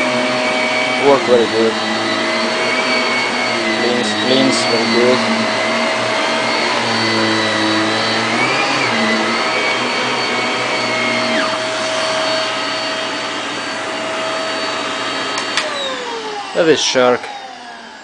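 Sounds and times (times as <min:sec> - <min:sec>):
vacuum cleaner motor whine: 0:00.0 - 0:18.0.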